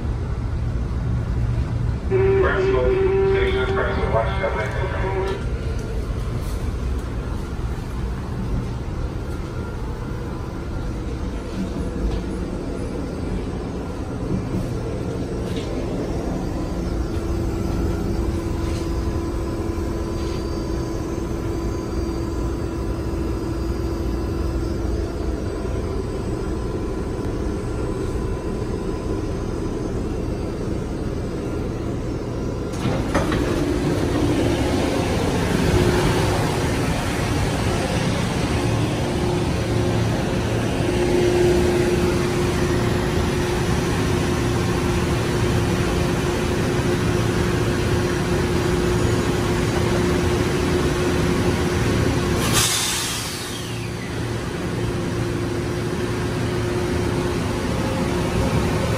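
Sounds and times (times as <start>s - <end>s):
train rumble and hum: 0.0s - 58.9s
train doors opening clunk: 32.6s - 36.4s.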